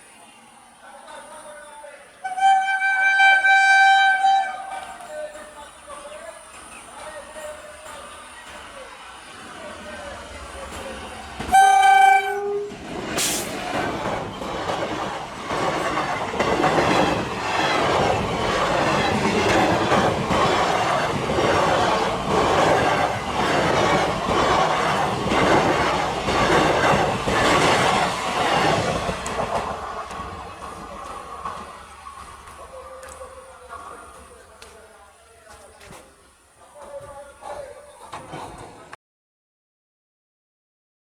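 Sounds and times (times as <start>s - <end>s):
train wheels clattering: 12.8s - 36.2s.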